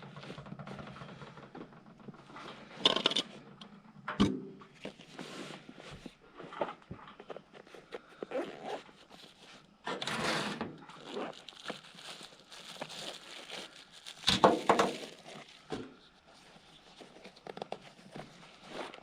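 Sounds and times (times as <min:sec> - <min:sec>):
rustling and crinkling handling noises: 0:04.7 - 0:10.0, 0:10.8 - 0:19.0.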